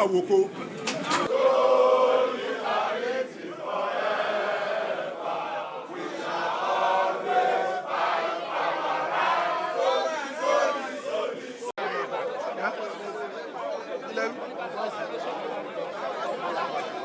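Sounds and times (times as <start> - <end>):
crowd chanting in unison: 0.6 - 17.0.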